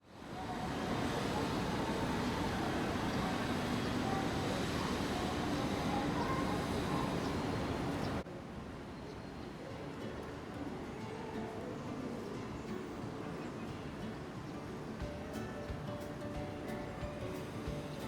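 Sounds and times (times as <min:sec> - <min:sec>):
traffic noise: 0:00.0 - 0:18.0
scattered voices: 0:00.4 - 0:08.2.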